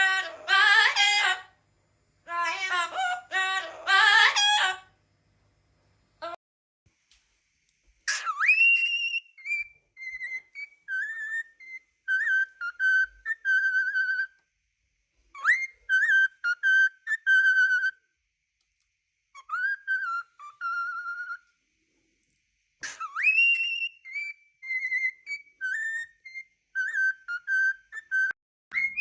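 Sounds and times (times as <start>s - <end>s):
parrot whistling a tune: 8.1s - 14.4s, 15.3s - 18.0s, 19.3s - 21.5s, 22.8s - 29.0s.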